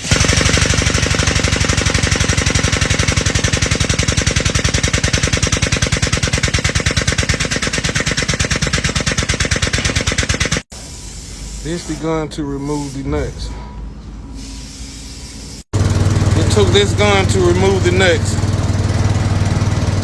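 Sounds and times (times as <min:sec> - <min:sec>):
air pump chattering on truck jack: 0:00.0 - 0:10.7.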